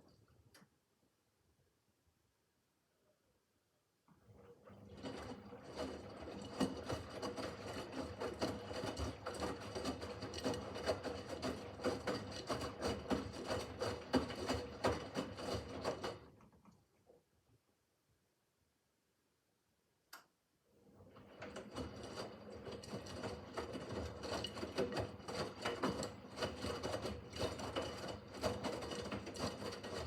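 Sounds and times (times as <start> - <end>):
washing machine motor humming: 4.3 - 16.4, 20.8 - 30.0.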